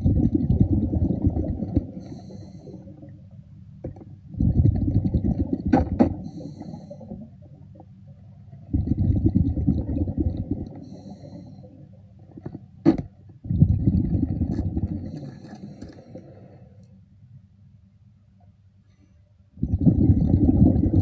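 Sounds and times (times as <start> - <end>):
underwater exhaled bubbles rumbling: 0.0 - 3.3, 4.3 - 11.3, 13.4 - 15.2, 19.6 - 21.0.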